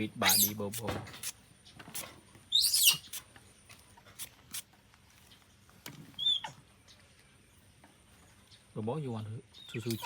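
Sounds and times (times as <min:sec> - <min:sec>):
monkey squealing: 0:00.2 - 0:00.6, 0:02.5 - 0:03.2, 0:06.2 - 0:06.6
brief high squeak: 0:02.6 - 0:03.1.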